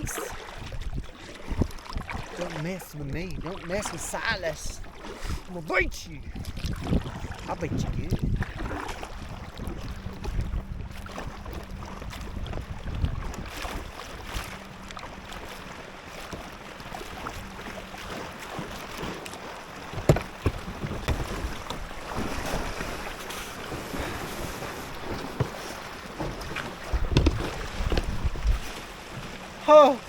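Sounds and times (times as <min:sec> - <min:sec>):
wind on microphone: 0:00.0 - 0:02.4, 0:06.1 - 0:14.4, 0:26.3 - 0:28.8
paddle splashes: 0:00.0 - 0:30.0
water slapping the hull: 0:00.0 - 0:30.0
knocks on kayak: 0:19.9 - 0:22.4, 0:25.0 - 0:28.6.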